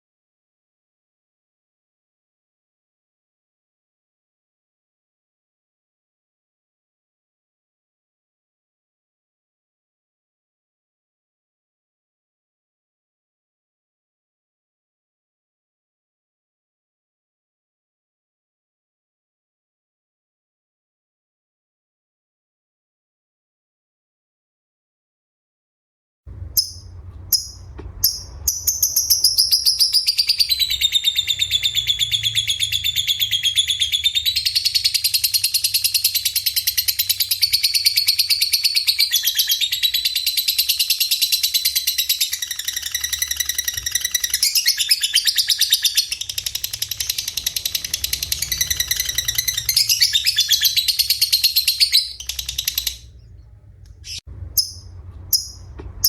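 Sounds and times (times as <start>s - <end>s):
low hum: 26.3s - 33.7s, 46.2s - 56.0s
songbird trilling and chirping: 26.5s - 55.8s.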